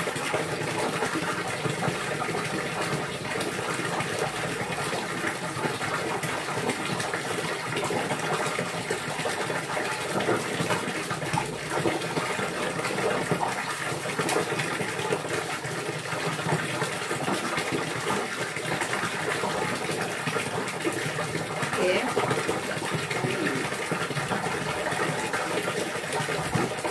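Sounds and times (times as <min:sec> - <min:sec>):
gushing water: 0:00.0 - 0:26.9.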